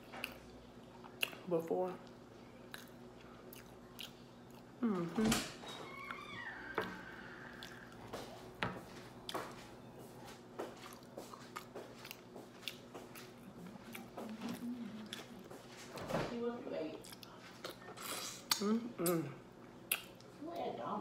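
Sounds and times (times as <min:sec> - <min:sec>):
person chewing with wet smacks: 0:00.0 - 0:05.1, 0:07.5 - 0:08.6, 0:09.3 - 0:16.0, 0:16.9 - 0:20.7
faint steady hum: 0:00.0 - 0:21.0.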